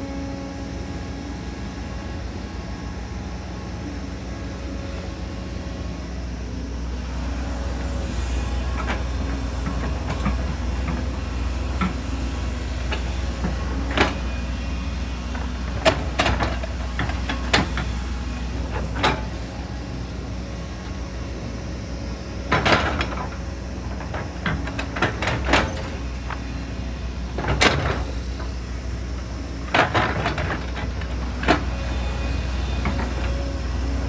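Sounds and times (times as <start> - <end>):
excavator diesel engine running: 0.0 - 34.0
clanks and scraping knocks: 8.6 - 14.6, 15.3 - 19.7, 22.5 - 26.6, 27.3 - 34.0.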